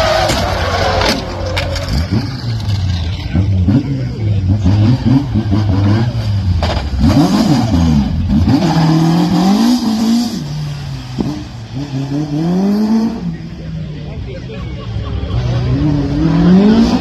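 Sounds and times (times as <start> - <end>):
car engine revving hard: 1.8 - 13.5, 15.3 - 17.0.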